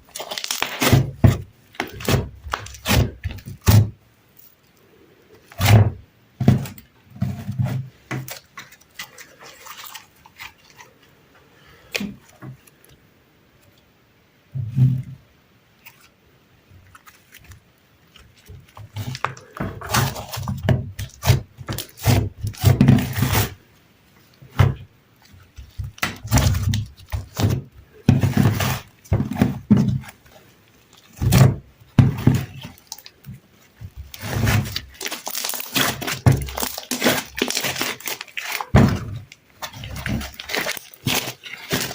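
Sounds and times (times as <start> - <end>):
slime squelching and popping: 25.2 - 41.9.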